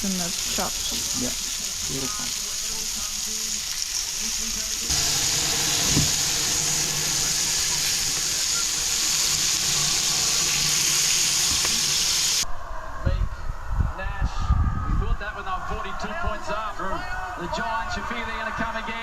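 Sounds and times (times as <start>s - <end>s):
meat sizzling: 0.0s - 12.4s.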